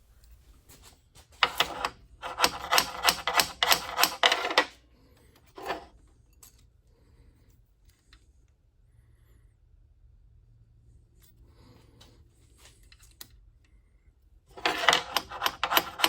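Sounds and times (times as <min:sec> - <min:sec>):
metallic clicks and scrapes: 0:00.2 - 0:06.7, 0:14.5 - 0:16.0.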